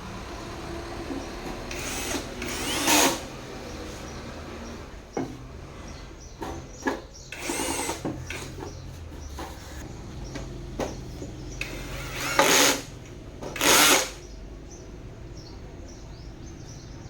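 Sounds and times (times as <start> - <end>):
small electric motor whirring: 1.7 - 3.4, 7.4 - 8.6, 11.6 - 12.9, 13.6 - 14.2.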